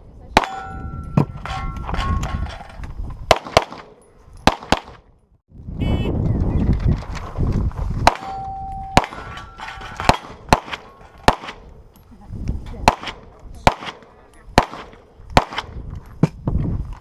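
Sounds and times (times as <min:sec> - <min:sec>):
pistol shots: 0:03.3 - 0:05.0, 0:08.0 - 0:11.8, 0:12.8 - 0:15.8
faint metallic ringing: 0:08.2 - 0:10.0.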